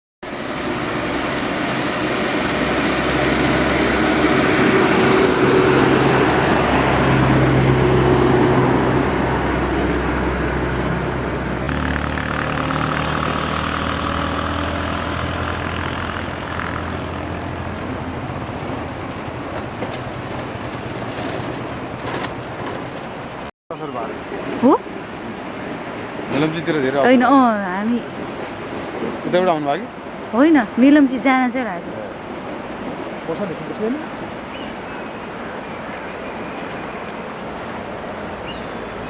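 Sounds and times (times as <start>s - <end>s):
broad rushing noise: 0.3s - 23.5s
vehicle engine running: 11.3s - 23.5s.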